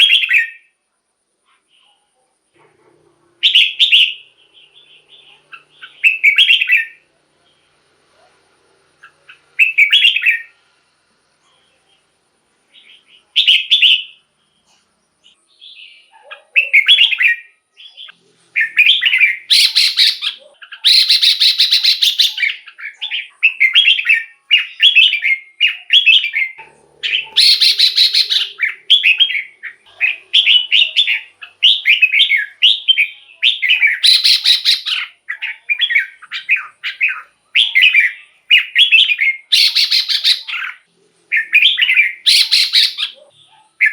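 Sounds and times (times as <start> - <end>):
bulbul warbling song: 16.3 - 43.9
harsh buzzy rattling calls: 26.5 - 32.9.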